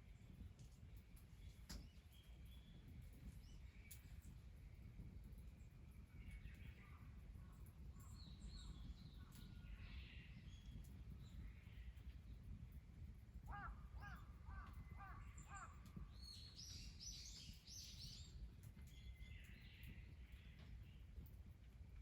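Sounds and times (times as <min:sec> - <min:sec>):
wild birds calling: 0:13.4 - 0:15.8.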